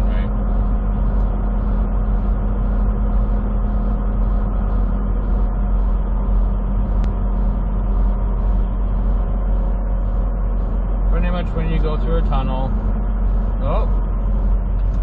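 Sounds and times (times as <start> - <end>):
faint regular pulse: 0.0 - 15.0
truck engine and road drone: 0.0 - 15.0.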